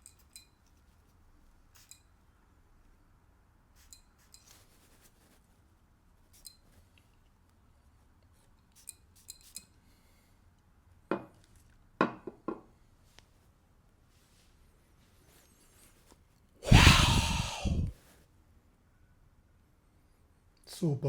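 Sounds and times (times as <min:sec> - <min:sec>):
short loud noises: 0:16.6 - 0:17.9.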